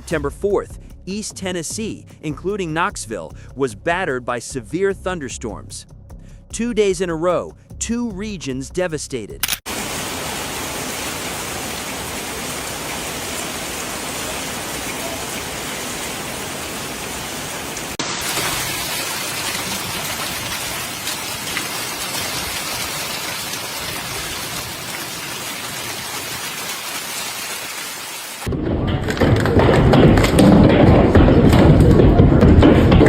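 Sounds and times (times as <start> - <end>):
heavy rain pouring: 9.7 - 33.0.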